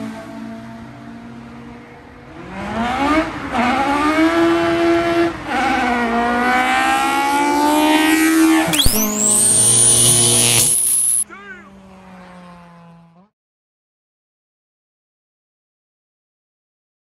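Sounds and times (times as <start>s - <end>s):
car engine revving at full throttle: 2.3s - 11.2s.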